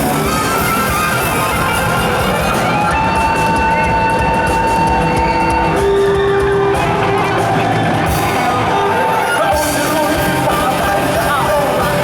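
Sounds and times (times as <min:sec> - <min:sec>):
live band playing amplified music: 0:00.0 - 0:12.0.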